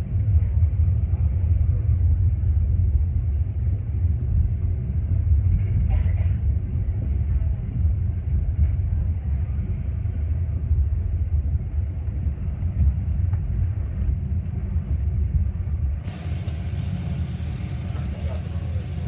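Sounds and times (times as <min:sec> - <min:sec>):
train low rumble: 0:00.0 - 0:19.0
train hiss: 0:16.0 - 0:19.0.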